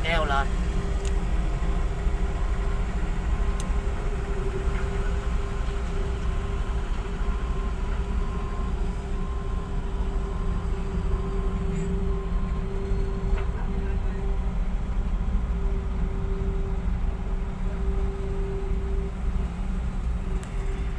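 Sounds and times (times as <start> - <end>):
engine running steadily: 0.0 - 20.9.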